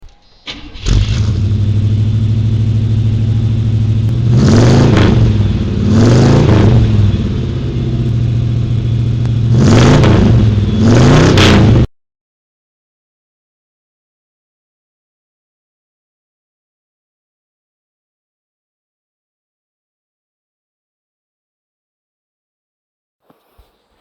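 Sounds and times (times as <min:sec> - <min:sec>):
car engine starting and revving: 0:00.4 - 0:11.9.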